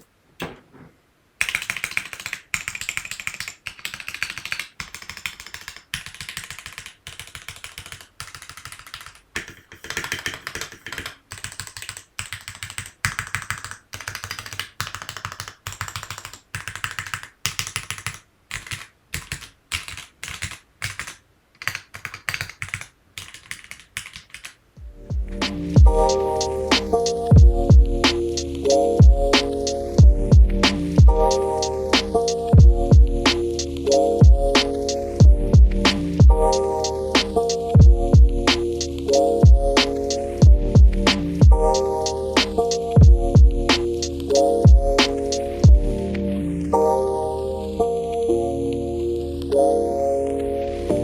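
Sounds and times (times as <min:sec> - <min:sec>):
mechanical keyboard keys clacking: 0:01.4 - 0:24.6
music: 0:24.8 - 0:51.0.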